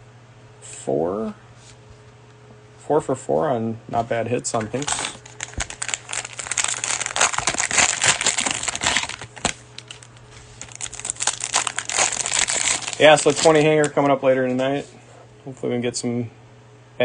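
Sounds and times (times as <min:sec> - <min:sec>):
cellophane wrapper crinkling: 0:04.6 - 0:14.6.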